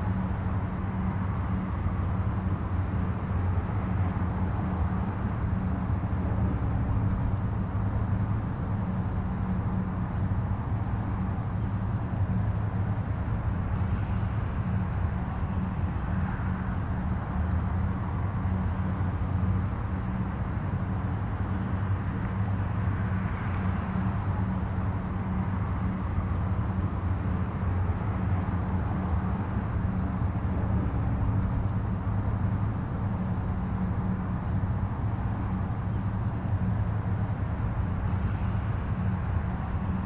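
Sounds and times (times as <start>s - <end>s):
distant highway traffic rumble: 0.0s - 40.0s
vehicles passing: 0.0s - 40.0s.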